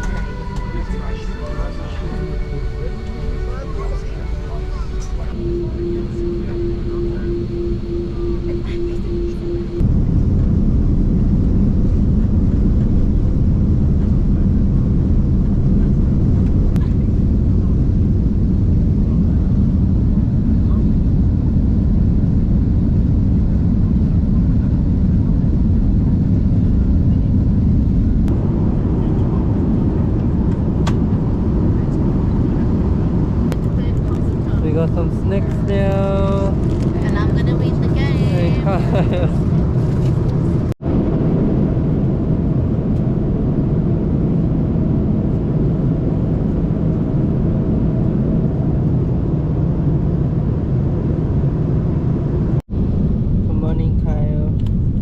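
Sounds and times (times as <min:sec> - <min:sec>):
faint steady hum: 0:00.0 - 0:19.9
airliner cabin engine drone: 0:00.0 - 0:55.0.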